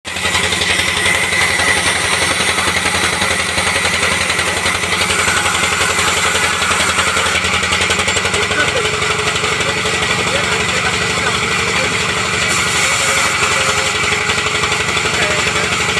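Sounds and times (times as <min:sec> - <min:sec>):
sawmill machinery drone: 0:00.1 - 0:15.9.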